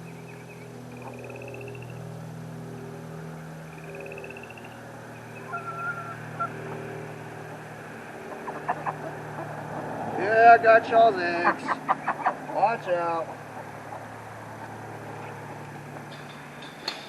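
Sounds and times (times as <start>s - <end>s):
steady low hum: 0.0s - 17.0s
ducks calling softly: 3.7s - 6.9s, 8.2s - 10.1s, 11.1s - 15.6s
rapid high trills: 3.8s - 7.3s.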